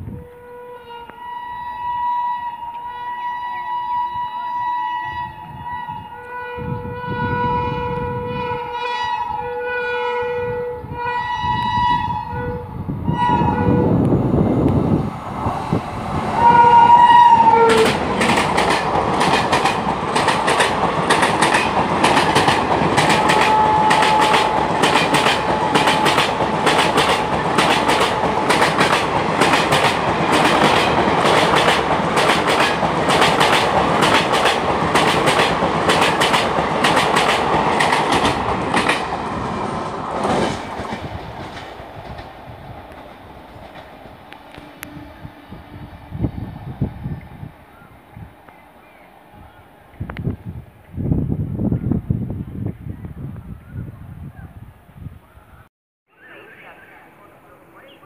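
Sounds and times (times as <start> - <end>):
train horn blasts: 0.0 - 14.1, 16.3 - 18.0, 23.1 - 26.6, 44.5 - 46.3
locomotive rumbling: 10.8 - 54.7
train wheels clickety-clack: 17.7 - 44.6.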